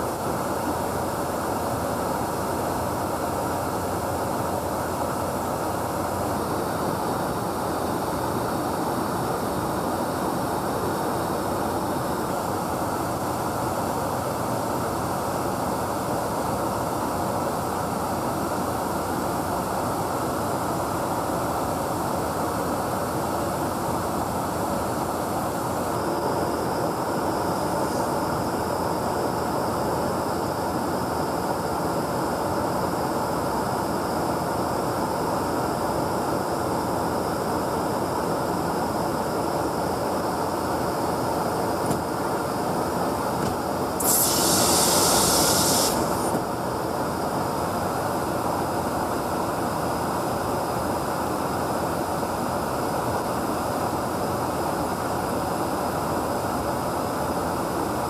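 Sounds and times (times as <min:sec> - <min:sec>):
aircraft in-flight noise: 0:22.8 - 0:31.7, 0:37.2 - 0:47.2
loud hiss: 0:43.1 - 0:46.6.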